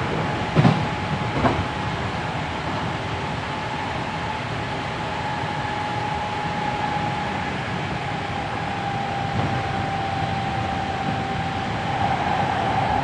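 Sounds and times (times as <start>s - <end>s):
train wheels rumbling: 0.0s - 3.3s, 7.4s - 13.0s
electric train motor whine: 0.0s - 13.0s.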